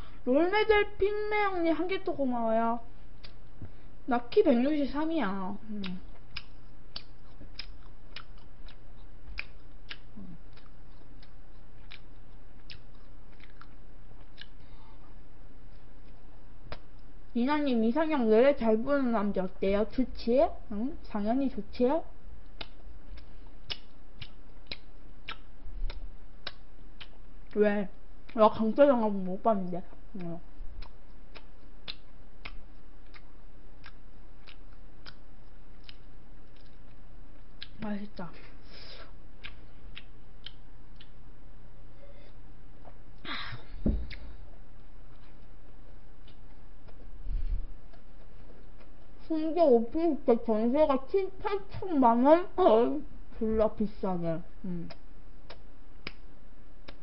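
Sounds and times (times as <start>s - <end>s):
low hum: 0.0s - 57.0s
person chewing bread: 5.8s - 17.3s, 22.4s - 27.6s, 29.9s - 37.8s, 39.0s - 43.2s, 44.0s - 49.2s, 54.8s - 57.0s
crisp chewing crunches: 6.1s - 14.6s.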